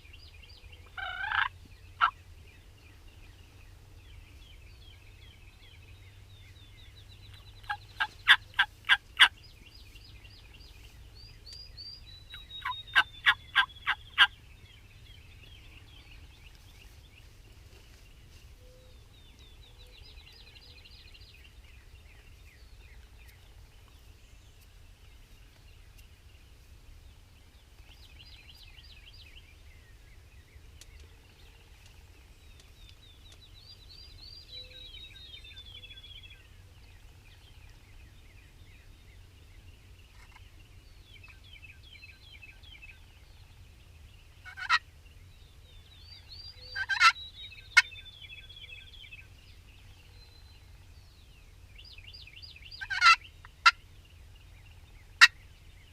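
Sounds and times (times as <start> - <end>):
songbirds singing: 0.0 - 55.9
turkey gobbling: 0.9 - 2.2, 7.6 - 9.3, 12.6 - 14.3, 44.4 - 44.8, 46.8 - 47.2, 52.8 - 53.8.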